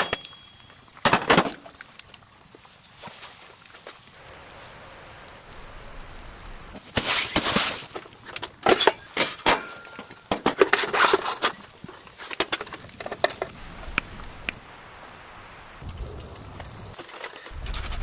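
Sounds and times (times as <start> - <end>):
objects clattering and rustling: 0.0 - 4.1, 6.7 - 13.6, 16.9 - 18.0.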